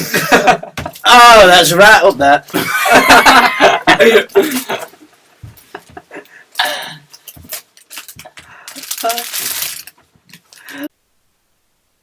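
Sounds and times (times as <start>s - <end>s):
person's voice: 8.8s - 9.6s.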